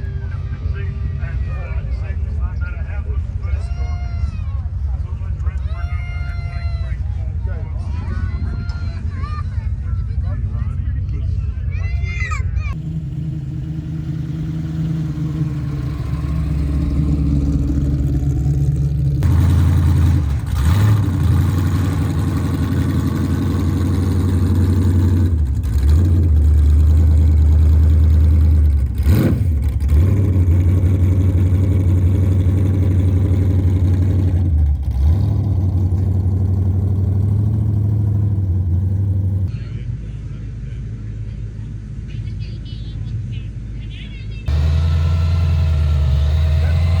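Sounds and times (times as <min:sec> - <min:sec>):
car engine running loud: 0:12.7 - 0:42.0, 0:44.5 - 0:47.0.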